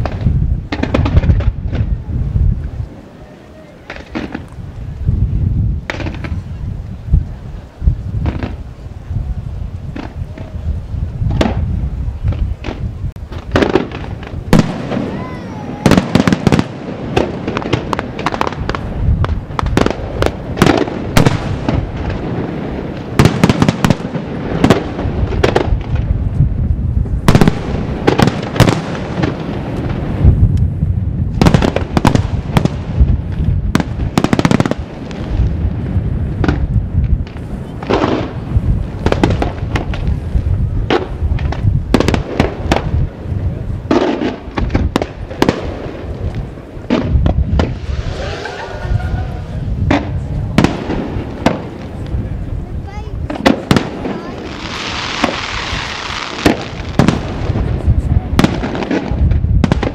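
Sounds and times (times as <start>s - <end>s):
firework shells bursting: 53.2s - 59.9s.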